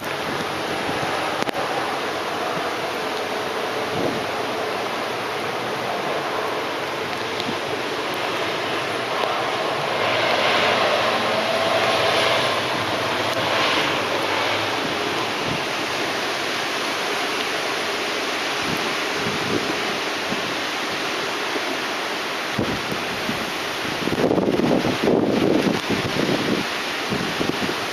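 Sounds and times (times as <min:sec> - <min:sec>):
wind buffeting microphone: 0:00.0 - 0:21.7, 0:22.5 - 0:27.9
wind and rain rushing: 0:00.0 - 0:27.9.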